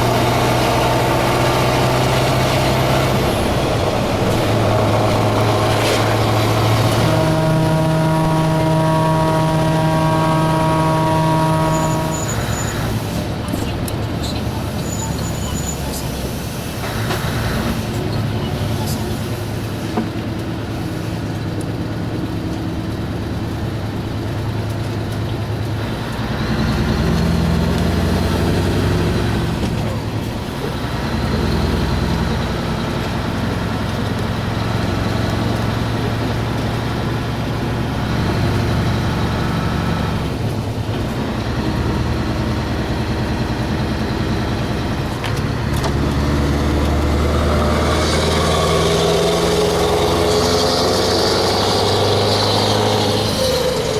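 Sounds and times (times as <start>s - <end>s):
truck diesel engine revving: 0.0s - 53.9s.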